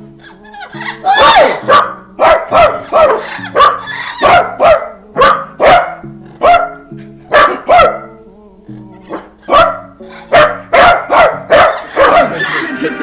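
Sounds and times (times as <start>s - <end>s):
background music with low notes: 0.0s - 13.0s
sharp dog-like barks: 1.1s - 8.1s, 9.1s - 12.5s.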